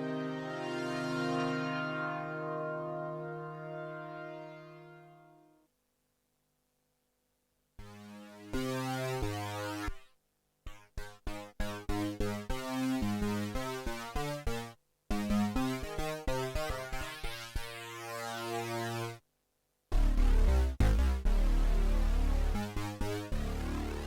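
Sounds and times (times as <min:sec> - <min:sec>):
synthesizer chords: 0:00.0 - 0:05.3, 0:20.0 - 0:24.0.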